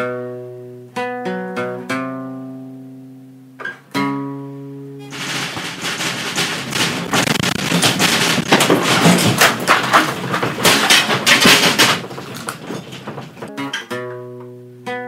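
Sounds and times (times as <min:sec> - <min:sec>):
house rattling and banging: 0:05.0 - 0:13.5
sharp knocks and clatters: 0:05.0 - 0:13.9.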